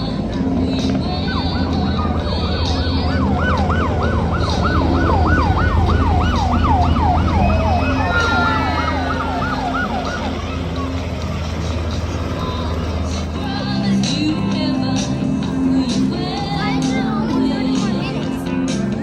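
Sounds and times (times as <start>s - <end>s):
emergency siren yelping: 1.2s - 10.7s.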